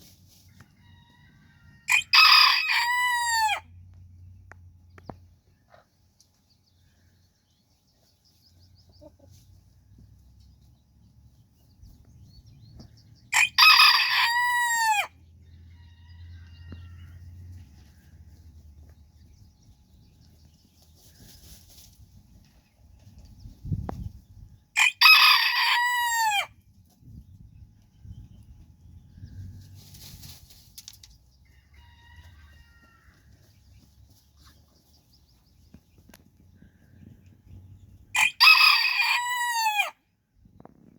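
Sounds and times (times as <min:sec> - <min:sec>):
chickens scratching and rustling: 0:00.0 - 0:01.8, 0:07.7 - 0:12.1, 0:16.7 - 0:24.5, 0:26.6 - 0:38.1
rooster crowing: 0:00.8 - 0:03.7, 0:13.3 - 0:17.2, 0:24.8 - 0:26.5, 0:31.6 - 0:33.2, 0:38.1 - 0:40.0.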